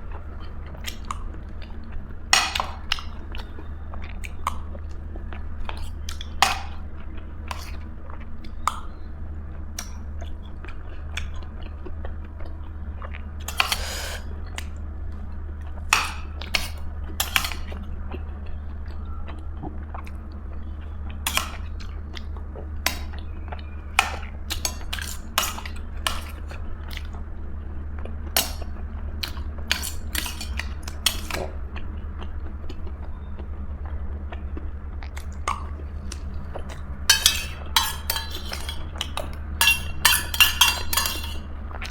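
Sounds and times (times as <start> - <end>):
cutlery clinking on plate: 13.5 - 14.2, 16.0 - 17.7, 21.3 - 21.7, 24.0 - 26.4, 29.7 - 31.5, 37.1 - 41.5.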